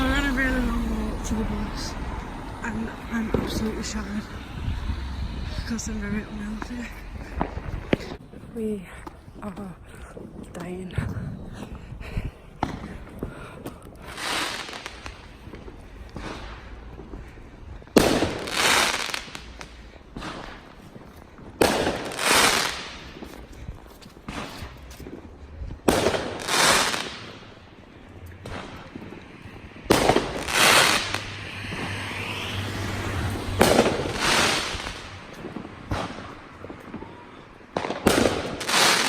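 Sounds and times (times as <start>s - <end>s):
fireworks bangs: 0.0s - 8.4s, 12.6s - 13.3s, 13.9s - 39.0s
fireworks crackling: 0.0s - 9.4s, 12.4s - 39.0s.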